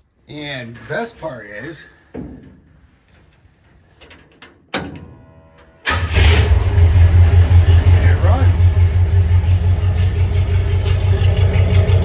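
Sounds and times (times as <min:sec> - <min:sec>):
starter motor cranking: 0:05.9 - 0:12.0
truck engine running: 0:05.9 - 0:12.0.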